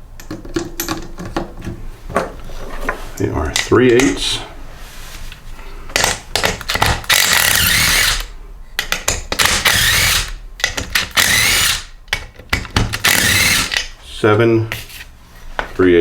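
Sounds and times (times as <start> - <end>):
cordless drill motor whine: 7.1 - 8.3, 9.7 - 10.3, 11.2 - 11.9, 13.1 - 13.8.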